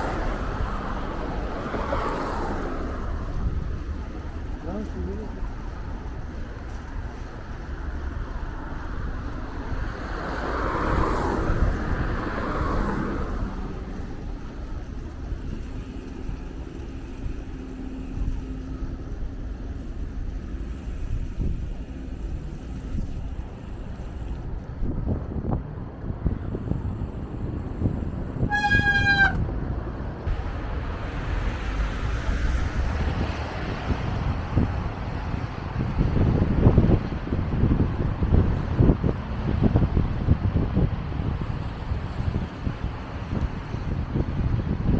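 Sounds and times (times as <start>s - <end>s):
vehicle passing close by: 0.0s - 6.7s, 7.9s - 23.2s, 26.2s - 36.9s
city traffic: 0.0s - 44.9s
road noise: 0.0s - 44.9s
wind: 0.0s - 44.9s
short horn toot: 28.4s - 29.4s.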